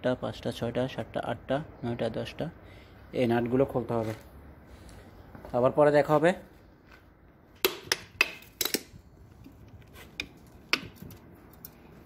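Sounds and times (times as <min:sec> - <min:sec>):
hand tools clicking and knocking: 0:07.6 - 0:11.8.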